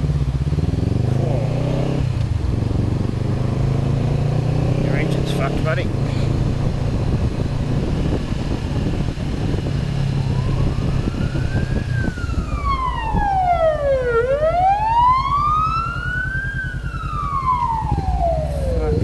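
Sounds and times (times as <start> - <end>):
engine hum: 0.0 - 19.0
emergency vehicle siren wailing: 8.5 - 19.0.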